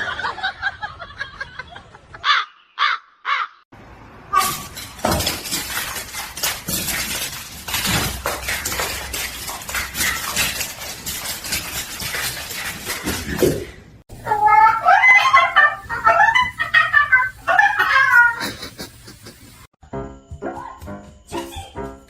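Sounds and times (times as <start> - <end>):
clattering and rustling with clicks: 4.4 - 13.8.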